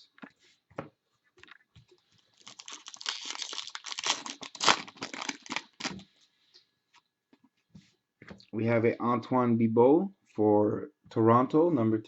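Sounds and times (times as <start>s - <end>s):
foil wrapper crinkling: 2.2s - 6.0s.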